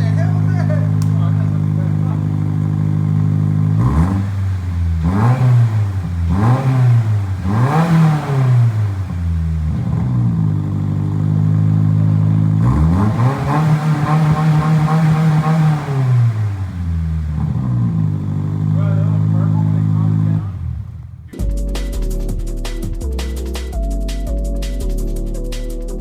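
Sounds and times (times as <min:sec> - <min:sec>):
car engine revving: 0:00.0 - 0:21.5.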